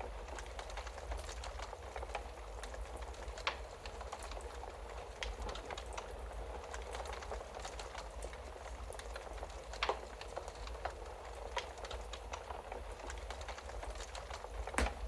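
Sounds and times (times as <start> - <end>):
wood fire crackling: 0.1 - 15.0
loud fire pops: 14.7 - 15.0.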